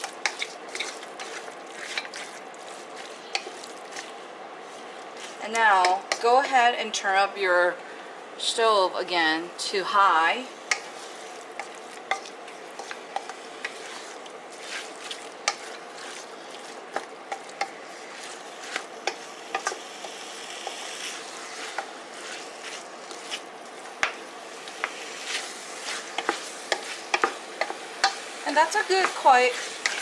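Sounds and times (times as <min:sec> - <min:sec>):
spoon scraping pot: 0:00.0 - 0:06.3, 0:10.7 - 0:19.8
chicken sizzling in pot: 0:00.0 - 0:06.6, 0:10.0 - 0:30.0.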